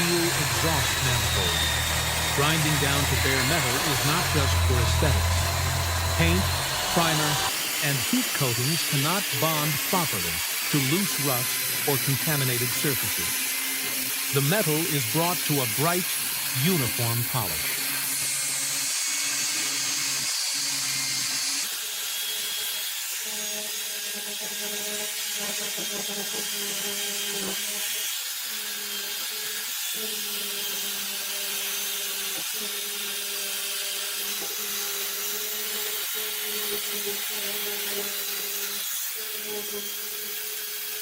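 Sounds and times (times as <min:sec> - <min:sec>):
metal grinding hiss: 0:00.0 - 0:11.2
rotary tool motor hum: 0:00.0 - 0:41.0.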